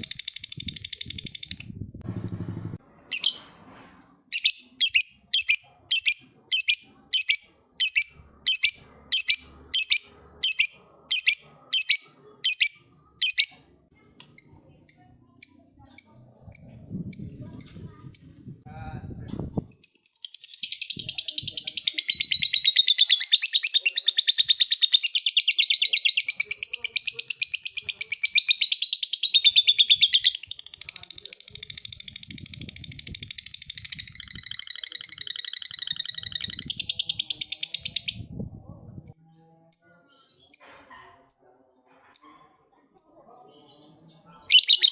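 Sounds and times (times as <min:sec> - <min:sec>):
lovebird rapid high chatter: 0:00.0 - 0:03.5, 0:19.6 - 0:38.5, 0:44.5 - 0:44.9
lovebird shrill chirps: 0:04.3 - 0:13.6, 0:44.5 - 0:44.9.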